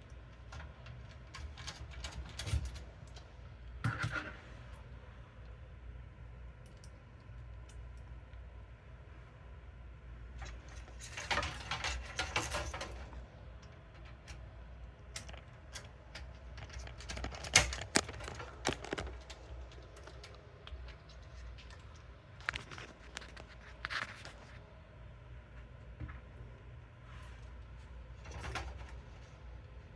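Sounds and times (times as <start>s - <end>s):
clicks and metallic rattles: 10.4s - 24.6s.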